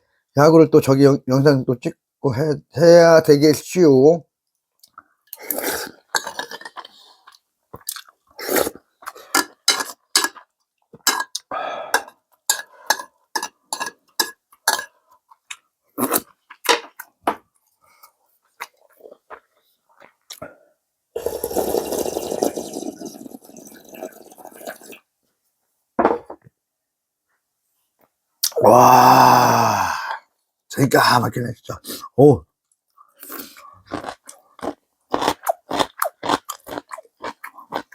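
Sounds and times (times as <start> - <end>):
person chewing: 4.8 - 17.2, 17.9 - 20.4, 33.0 - 37.9.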